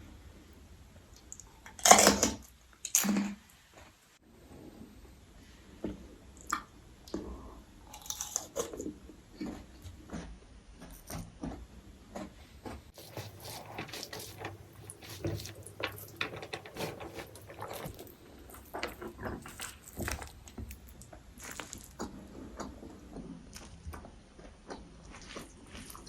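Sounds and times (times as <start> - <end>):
person chewing food: 5.8 - 11.6, 12.2 - 26.0.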